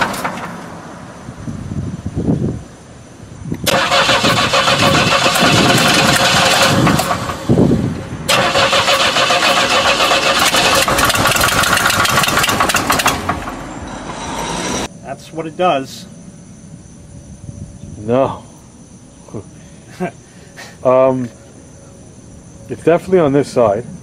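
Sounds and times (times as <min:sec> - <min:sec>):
car engine cranking on starter: 0:03.6 - 0:07.6, 0:08.3 - 0:14.9.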